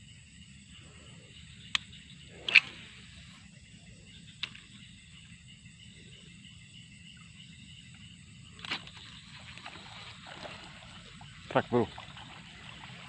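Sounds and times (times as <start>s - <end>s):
faint ticks: 1.6s - 2.8s, 4.3s - 4.9s.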